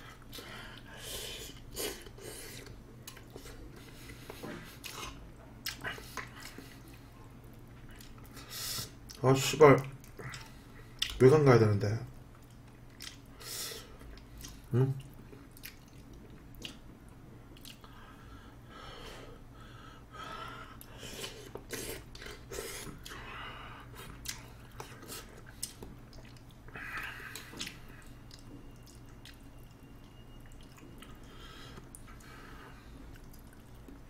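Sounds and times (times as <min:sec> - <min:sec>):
person chewing food: 0:00.0 - 0:09.2, 0:09.9 - 0:11.2, 0:12.3 - 0:18.1, 0:20.8 - 0:34.0
wet mouth clicks and smacks: 0:12.4 - 0:13.2, 0:15.6 - 0:16.8, 0:17.6 - 0:17.9.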